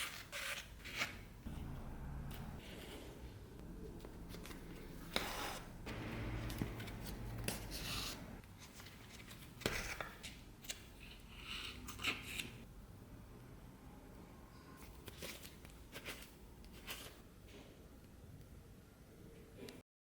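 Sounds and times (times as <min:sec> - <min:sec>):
scraping or snipping strokes: 0:04.4 - 0:08.4.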